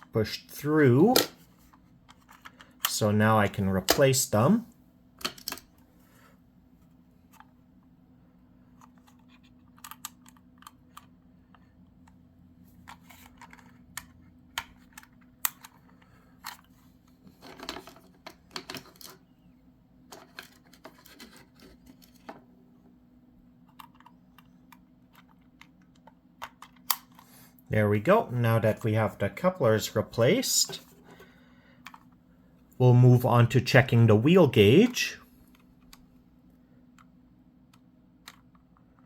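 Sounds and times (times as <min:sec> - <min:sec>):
faint steady hum: 0:00.0 - 0:39.0
plastic and metal parts clicking: 0:08.7 - 0:12.2, 0:12.8 - 0:16.7, 0:23.6 - 0:27.3.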